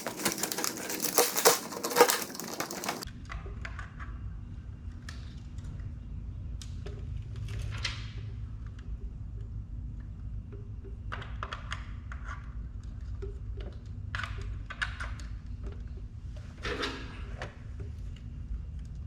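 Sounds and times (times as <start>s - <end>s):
small clicks and knocks: 0.0s - 3.1s.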